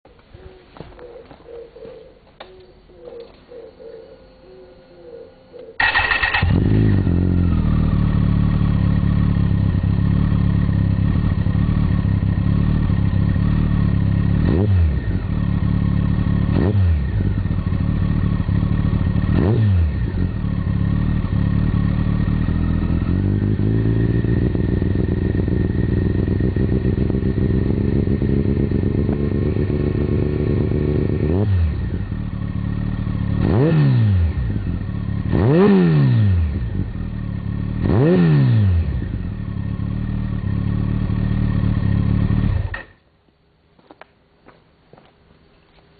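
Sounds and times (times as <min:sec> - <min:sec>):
motorcycle engine idling and revving: 0:05.7 - 0:43.1.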